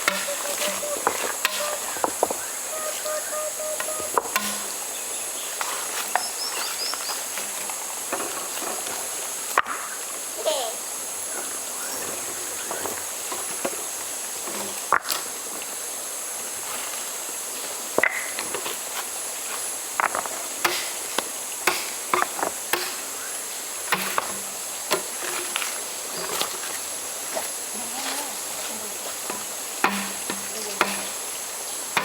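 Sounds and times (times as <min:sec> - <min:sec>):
high-pitched insect chorus: 0:00.0 - 0:32.0.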